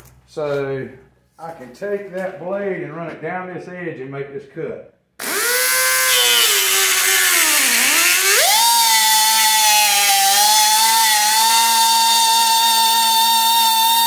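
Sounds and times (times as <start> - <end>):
die grinder cutting wire mesh: 5.2 - 14.0.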